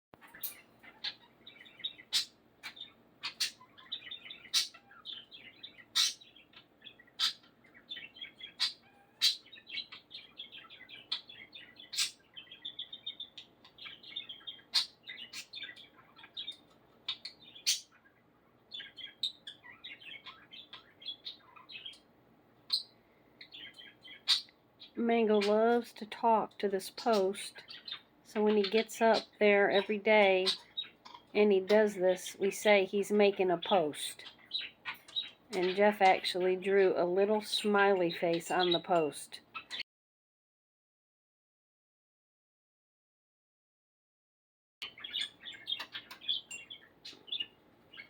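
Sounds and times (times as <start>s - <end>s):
budgerigar clicks and chirps: 0.2s - 18.0s, 22.7s - 25.6s, 34.2s - 36.3s, 38.3s - 39.8s, 44.8s - 48.0s
budgerigar chattering and warbling: 0.2s - 22.0s, 22.6s - 25.6s, 27.1s - 31.3s, 39.5s - 39.8s, 44.8s - 48.0s.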